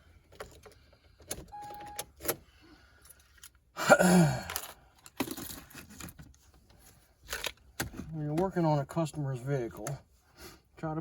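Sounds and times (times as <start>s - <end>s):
short steady beep: 1.5s - 2.0s.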